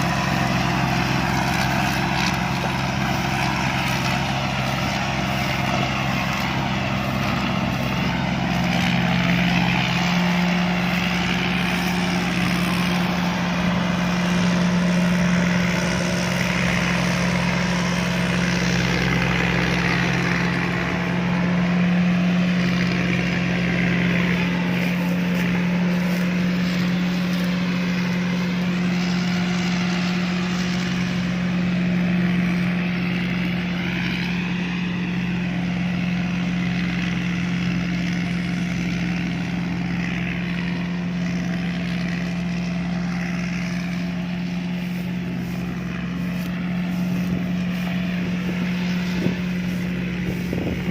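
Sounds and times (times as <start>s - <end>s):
combine harvester engine hum: 0.0s - 50.9s
wavering mechanical whir: 39.0s - 50.9s.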